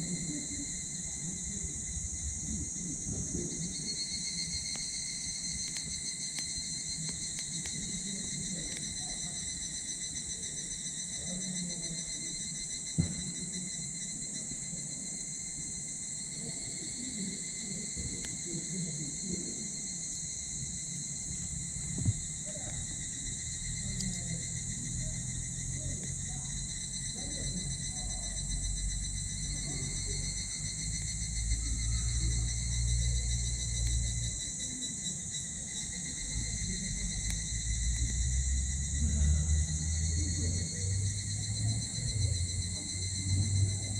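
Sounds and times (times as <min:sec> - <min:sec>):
insect chorus: 0:00.0 - 0:43.9
fire popping: 0:01.8 - 0:10.1, 0:17.4 - 0:38.3
wood fire crackling: 0:03.7 - 0:10.3, 0:17.4 - 0:38.3.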